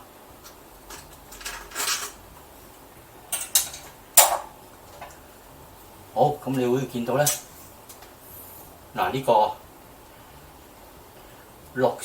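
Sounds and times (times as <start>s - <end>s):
hard parts clattering and scraping: 0.4s - 2.5s, 3.3s - 5.2s.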